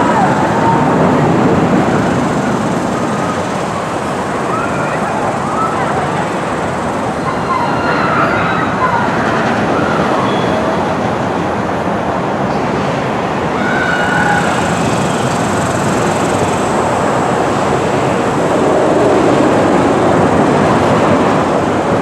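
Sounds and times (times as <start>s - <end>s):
high wheel squeals: 0.0s - 10.9s, 13.5s - 18.8s
train rumbling: 0.0s - 22.0s.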